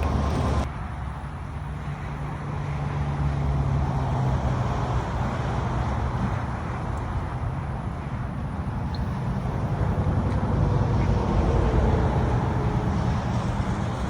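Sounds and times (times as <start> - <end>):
car engine running: 0.0 - 0.7.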